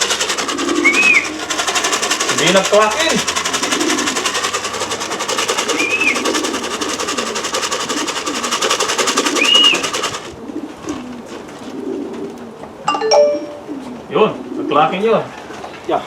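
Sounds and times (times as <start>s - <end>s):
fast even clattering: 0.0s - 10.4s
pigeons cooing: 0.0s - 12.9s, 13.5s - 15.8s.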